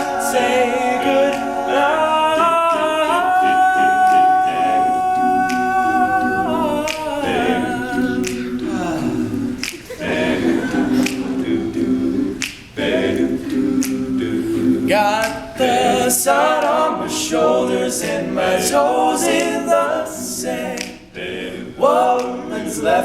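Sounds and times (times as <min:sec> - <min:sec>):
male group singing in harmony: 0:00.0 - 0:23.0
finger snaps: 0:06.8 - 0:07.1, 0:08.2 - 0:09.9, 0:12.4 - 0:12.8, 0:13.8 - 0:14.0, 0:20.7 - 0:21.1.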